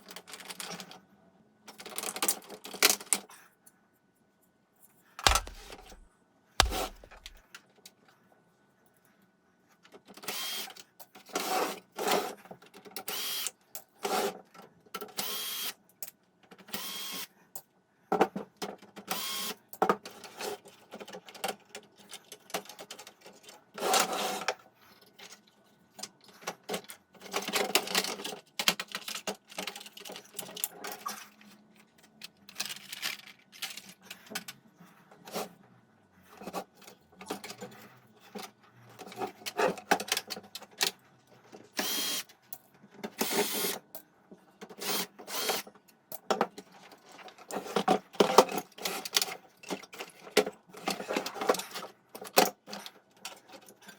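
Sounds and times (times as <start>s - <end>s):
small tools clicking and rattling: 5.2s - 6.0s, 6.6s - 7.6s.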